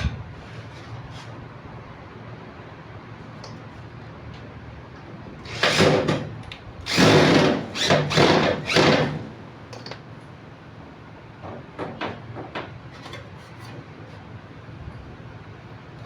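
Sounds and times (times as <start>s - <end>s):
power drill running: 5.4s - 6.3s, 6.9s - 9.4s.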